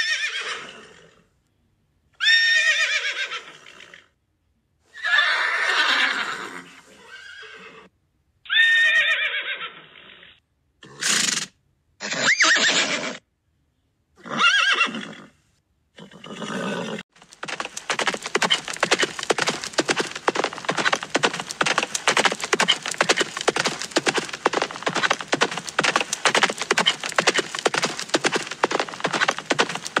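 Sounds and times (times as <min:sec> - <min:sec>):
horses whinnying: 0:00.0 - 0:01.2, 0:02.2 - 0:04.0, 0:05.0 - 0:07.9, 0:08.5 - 0:10.1, 0:12.0 - 0:13.2, 0:14.2 - 0:15.3, 0:16.0 - 0:30.0
horses galloping hoofbeats: 0:17.1 - 0:30.0.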